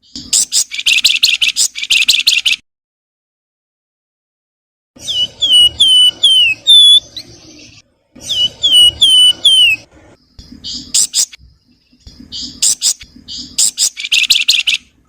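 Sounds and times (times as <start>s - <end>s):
songbird whistling: 0.0s - 2.6s, 5.0s - 11.4s, 12.1s - 14.9s.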